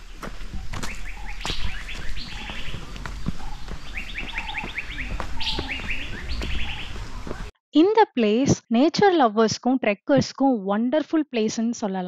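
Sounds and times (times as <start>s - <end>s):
birds chirping: 0.0s - 7.5s.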